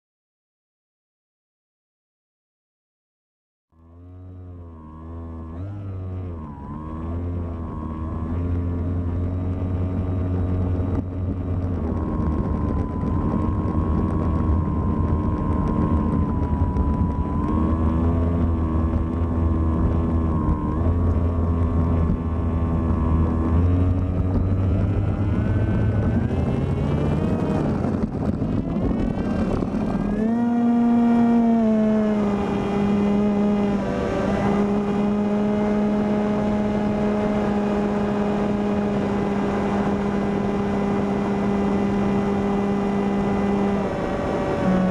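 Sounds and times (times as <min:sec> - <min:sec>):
model plane motor and propeller: 0:03.8 - 0:30.3
wind noise: 0:06.3 - 0:44.9.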